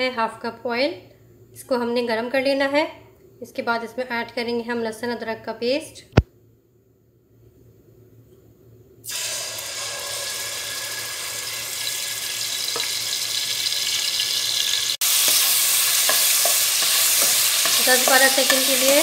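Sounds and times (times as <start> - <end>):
paste sizzling in hot oil: 9.1 - 19.0
spoon stirring in pot: 15.0 - 19.0.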